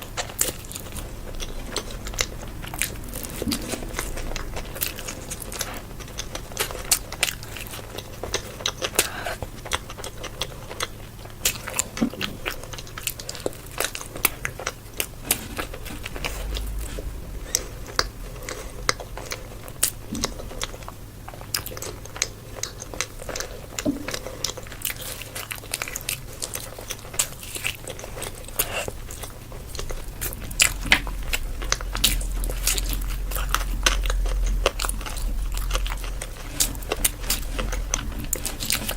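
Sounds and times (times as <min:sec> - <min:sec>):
chewing: 0:00.0 - 0:38.9
person crunching food: 0:00.0 - 0:38.9
low rumble: 0:00.8 - 0:07.3, 0:13.9 - 0:21.3, 0:29.0 - 0:38.9.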